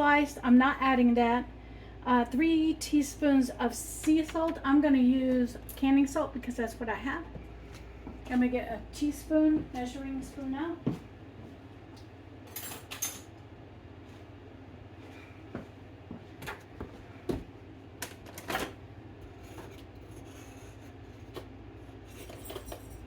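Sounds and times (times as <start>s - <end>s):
utensils clattering: 22.0s - 23.0s.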